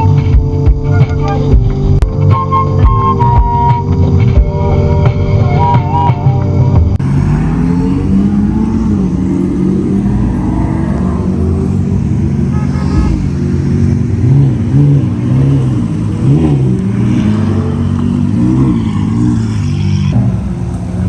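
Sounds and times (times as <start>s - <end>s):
car engine revving: 7.0s - 21.0s.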